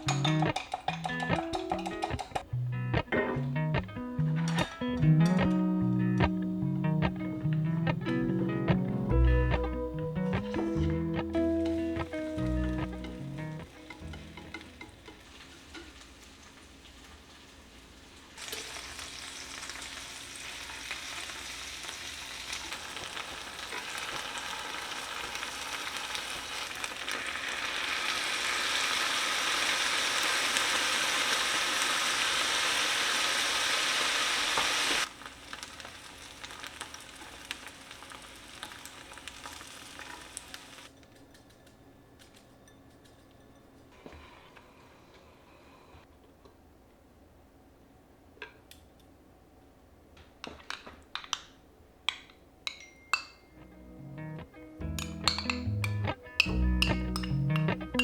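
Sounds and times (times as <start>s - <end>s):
food sizzling in a frying pan: 10.2s - 40.9s.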